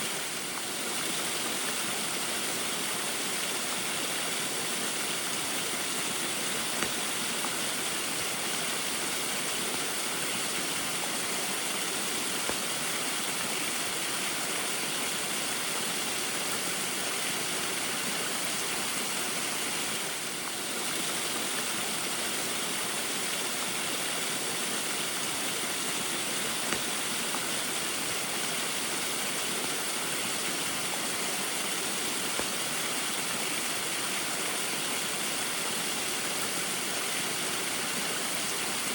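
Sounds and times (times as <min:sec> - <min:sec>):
small waterfall splashing: 0:00.0 - 0:38.9.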